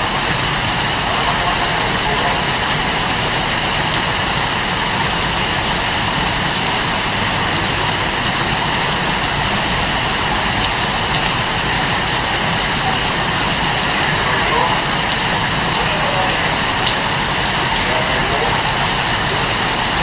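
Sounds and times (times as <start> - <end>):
faint raindrop ticks: 0.0 - 20.0
rain falling: 0.0 - 20.0.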